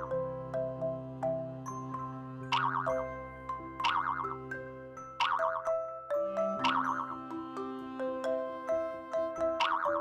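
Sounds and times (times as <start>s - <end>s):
cheerful children's music: 0.0s - 10.0s.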